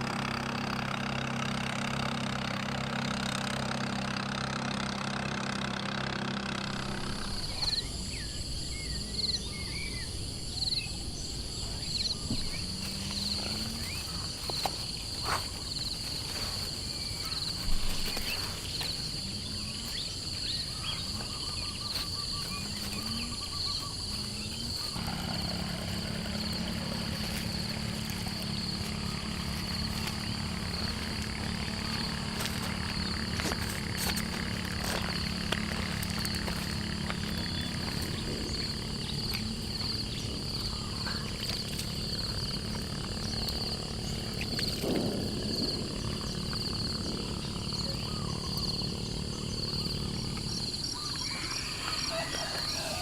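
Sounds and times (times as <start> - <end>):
insects trilling: 0.0 - 53.0
low droning hum: 6.6 - 53.0
short low rising calls: 22.4 - 41.4.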